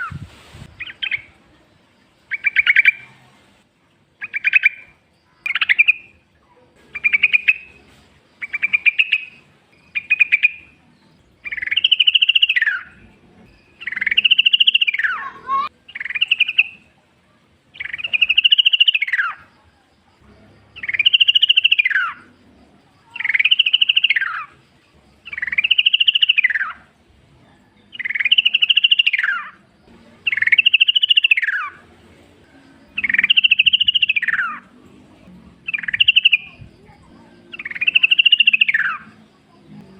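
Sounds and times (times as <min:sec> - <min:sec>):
bulbul whistled song: 0:00.0 - 0:01.4, 0:02.2 - 0:03.2, 0:04.2 - 0:06.2, 0:07.0 - 0:16.9, 0:17.7 - 0:19.5, 0:20.8 - 0:22.3, 0:23.0 - 0:24.5, 0:25.2 - 0:27.0, 0:27.7 - 0:34.7, 0:35.6 - 0:39.2.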